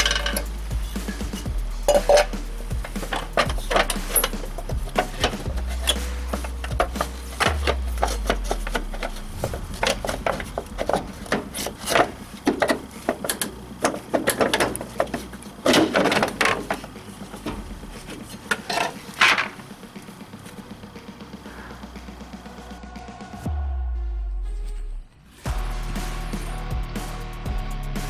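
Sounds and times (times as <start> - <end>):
hand tools clicking and knocking: 0.0 - 20.6
loud scraping rubs: 0.8 - 14.1.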